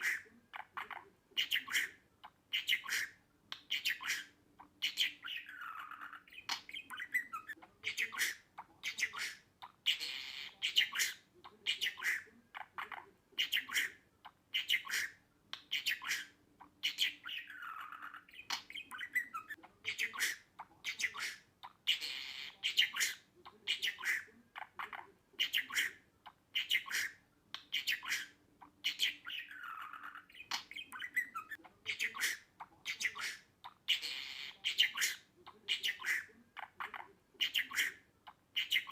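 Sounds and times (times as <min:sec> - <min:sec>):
budgerigar chirping and squawking: 0:00.0 - 0:38.9.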